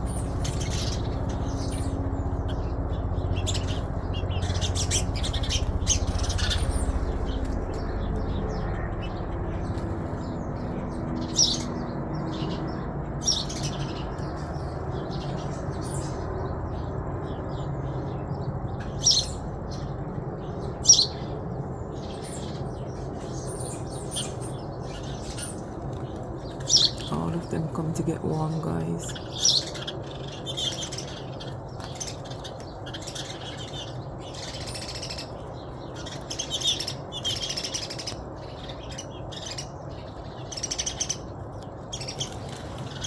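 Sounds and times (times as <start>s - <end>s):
steady low rumble: 0.0s - 11.3s
birds chirping: 0.0s - 43.0s.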